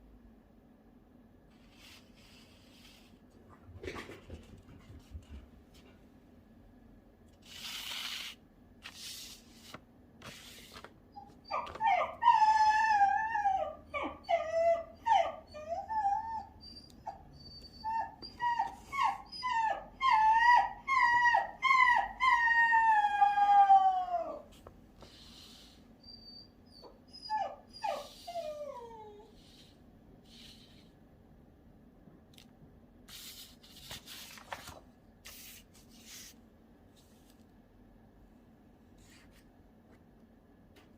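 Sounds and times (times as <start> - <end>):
dog howling and whining: 11.2 - 24.5, 26.0 - 29.5.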